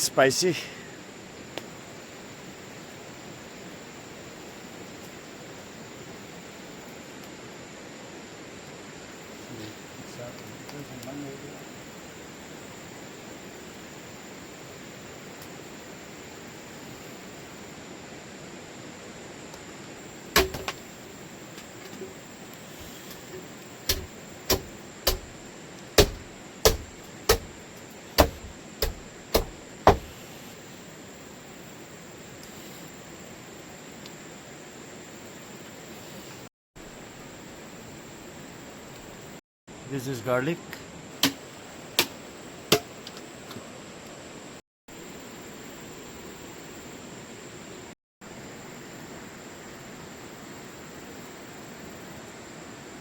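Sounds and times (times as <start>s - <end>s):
even hiss: 0.0s - 34.5s, 39.8s - 43.1s
knife chopping food: 23.9s - 25.4s, 26.0s - 27.5s, 28.2s - 30.1s.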